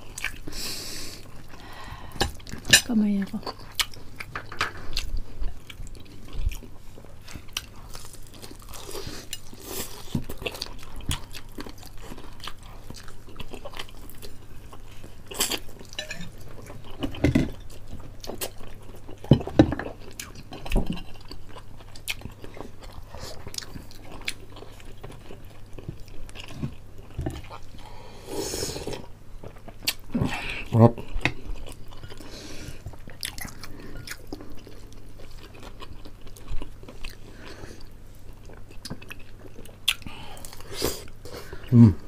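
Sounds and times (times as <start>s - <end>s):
spoon clinking on dishes: 16.0s - 16.3s.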